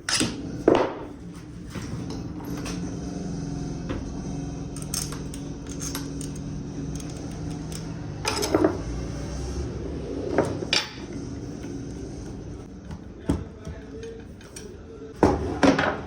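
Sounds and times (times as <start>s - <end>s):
machinery hum: 0.0s - 16.0s
metal parts clanking: 4.7s - 8.9s.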